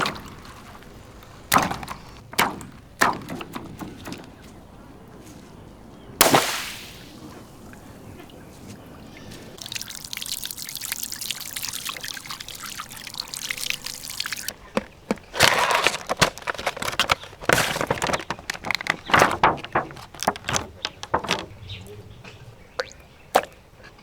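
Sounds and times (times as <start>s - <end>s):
water pouring: 6.2s - 14.5s
water gushing and splashing: 6.2s - 14.6s.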